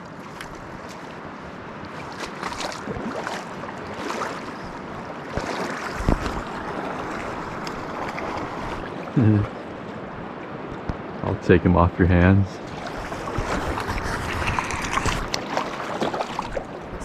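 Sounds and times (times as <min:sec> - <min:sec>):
flowing river water: 0:00.0 - 0:17.0
wind on microphone: 0:04.6 - 0:09.5, 0:12.6 - 0:17.0
short splashes or knocks: 0:05.3 - 0:08.9, 0:12.7 - 0:16.7.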